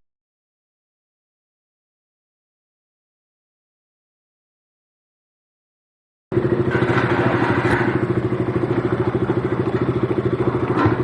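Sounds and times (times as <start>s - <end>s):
motorcycle engine running: 6.3s - 11.0s
sharp knocks: 6.6s - 9.0s.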